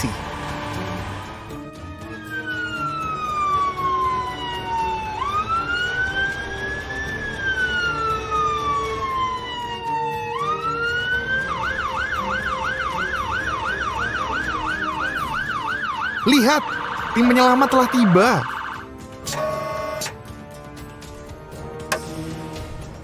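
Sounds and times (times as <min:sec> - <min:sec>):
emergency vehicle siren: 0:00.0 - 0:21.1.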